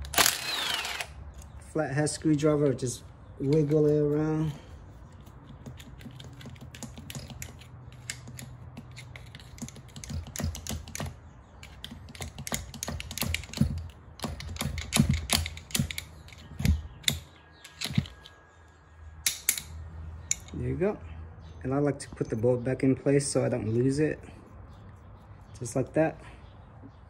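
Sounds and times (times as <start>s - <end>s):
screwdriver clicking on metal: 5.6s - 18.3s.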